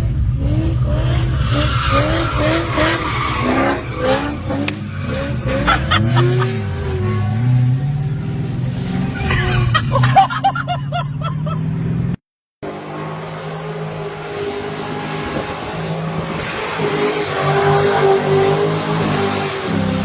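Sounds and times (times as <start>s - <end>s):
car engine running hard: 0.0s - 20.0s.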